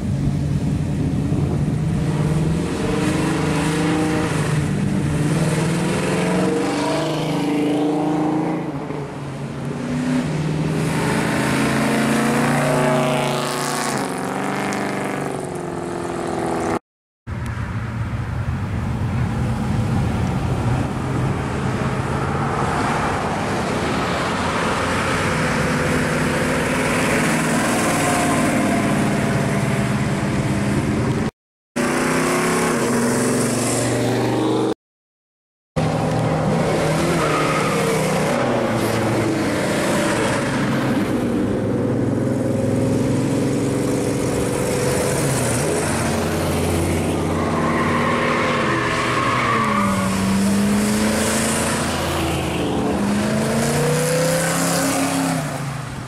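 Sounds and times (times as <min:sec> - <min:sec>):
car engines accelerating: 0:00.0 - 0:16.8, 0:35.8 - 0:56.0.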